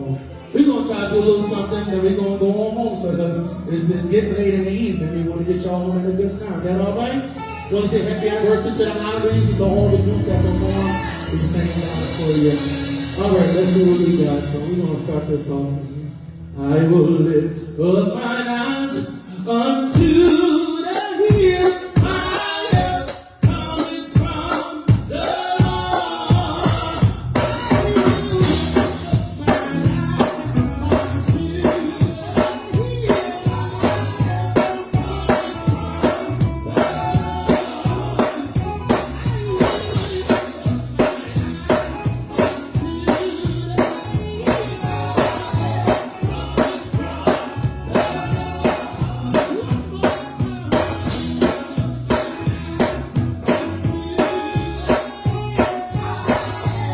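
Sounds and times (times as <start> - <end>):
gospel band music: 0.0 - 56.9
person singing: 0.0 - 56.9
drum kit beat: 6.4 - 15.4, 18.9 - 56.9.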